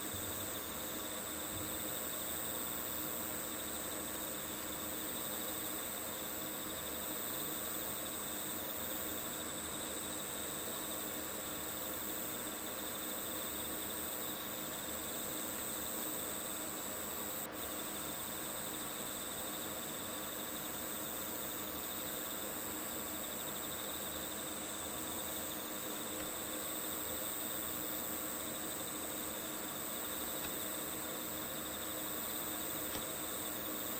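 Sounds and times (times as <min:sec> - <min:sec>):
crickets chirring: 0:00.0 - 0:33.9
sharp click: 0:30.4 - 0:30.6, 0:32.9 - 0:33.1.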